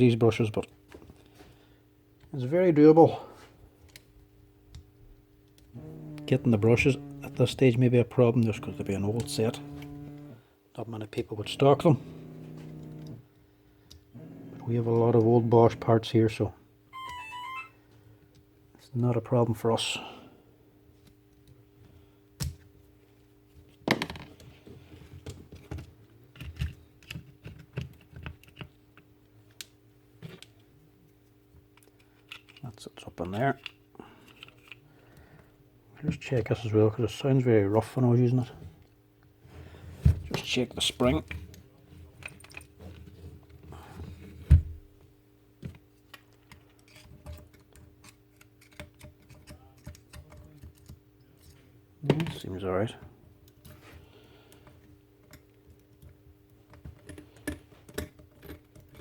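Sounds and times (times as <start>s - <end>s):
metal parts clicking and rattling: 31.8s - 34.8s.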